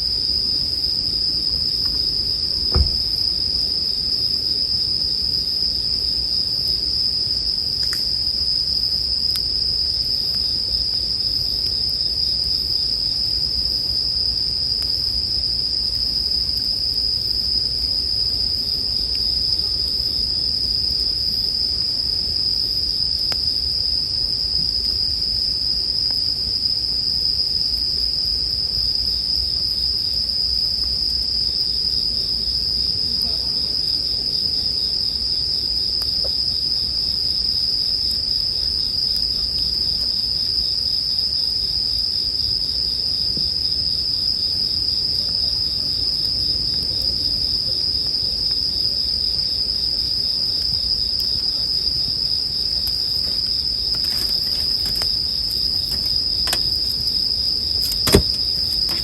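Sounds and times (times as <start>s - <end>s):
campfire crackles: 0.0s - 32.7s, 45.2s - 59.0s
bell crickets singing: 0.0s - 59.0s.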